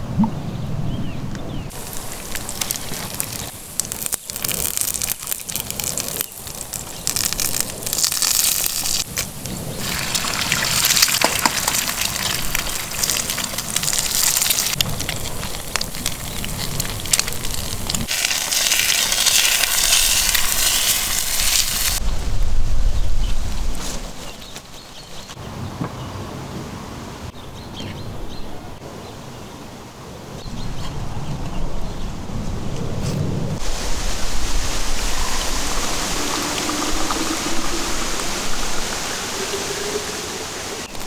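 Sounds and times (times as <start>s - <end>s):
food sizzling in a pan: 1.7s - 22.0s, 33.6s - 41.0s.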